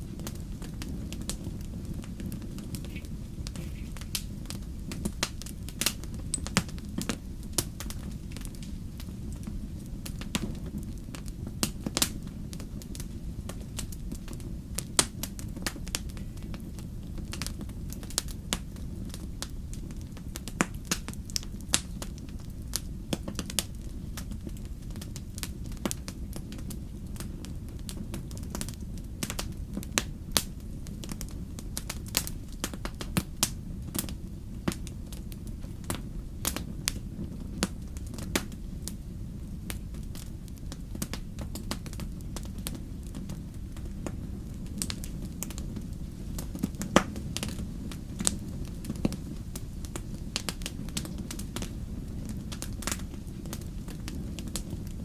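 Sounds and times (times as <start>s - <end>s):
bonfire flames rumbling: 0.0s - 55.0s
fire crackles and pops: 0.0s - 55.0s.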